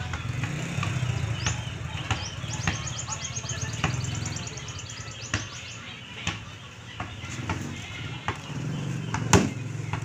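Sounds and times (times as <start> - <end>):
small bird chirping: 0.9 - 6.2.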